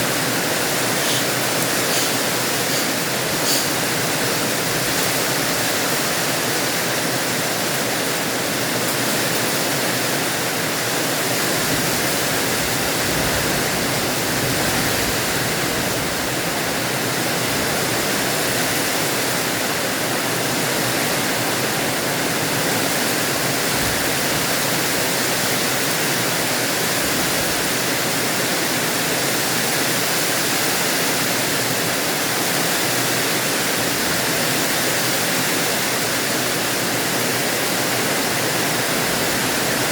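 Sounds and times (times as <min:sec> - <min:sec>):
rain falling: 0:00.0 - 0:18.5.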